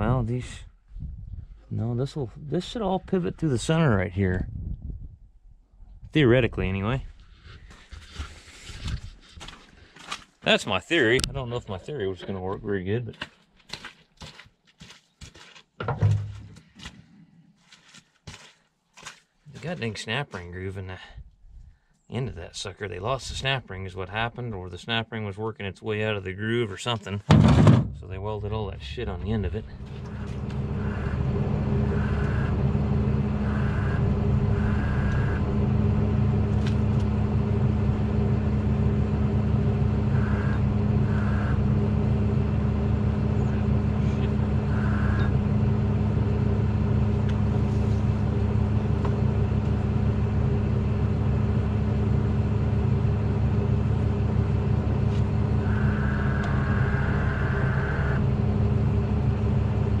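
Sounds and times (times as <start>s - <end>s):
truck engine idling: 27.8s - 60.0s.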